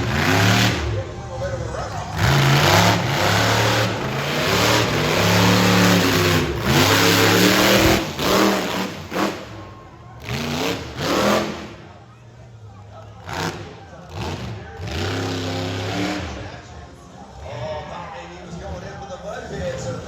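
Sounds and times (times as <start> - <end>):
truck engine revving hard: 0.0 - 11.9, 13.2 - 16.6.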